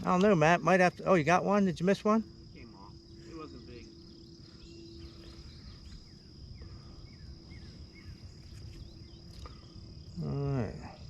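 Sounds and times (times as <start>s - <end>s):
high-pitched insect drone: 0.0s - 11.0s
bird chirps: 2.5s - 11.0s.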